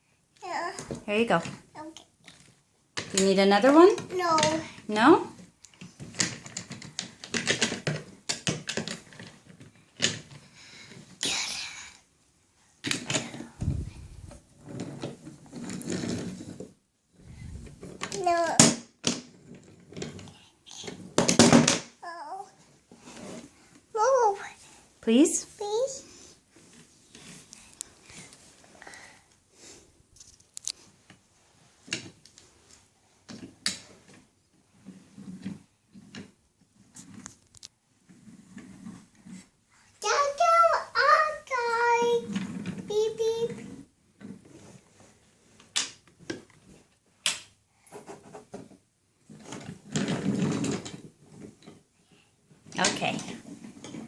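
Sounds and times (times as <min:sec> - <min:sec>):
rough handling noise: 0:12.8 - 0:47.0.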